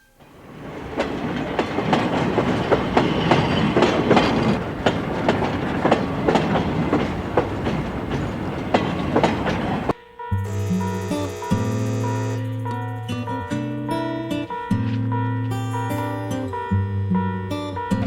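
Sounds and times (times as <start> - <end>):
train rumble: 0.0 - 10.0
wheels clacking over rail joints: 0.0 - 10.0.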